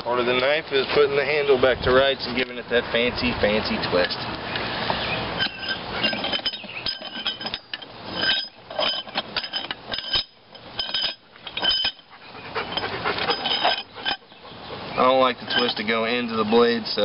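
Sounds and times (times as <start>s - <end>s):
metal tools clinking on metal: 5.3s - 14.4s, 15.0s - 17.0s.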